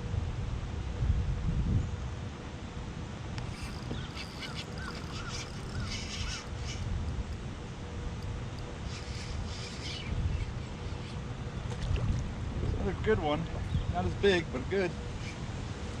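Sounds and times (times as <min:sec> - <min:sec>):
bird calling short notes: 0:03.5 - 0:06.9.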